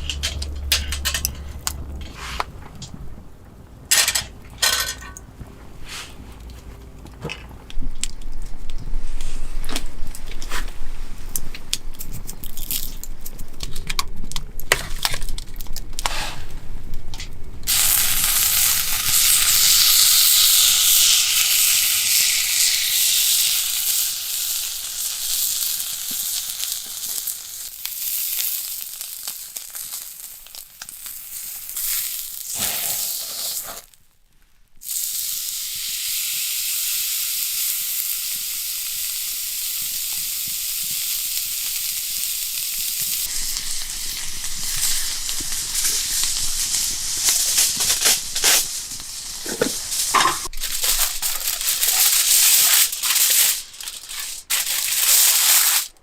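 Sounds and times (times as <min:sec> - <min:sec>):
cooking utensils clinking: 0:00.0 - 0:01.8, 0:03.9 - 0:05.3, 0:49.4 - 0:50.6
beef sizzling over campfire: 0:17.7 - 0:34.0, 0:34.8 - 0:55.9.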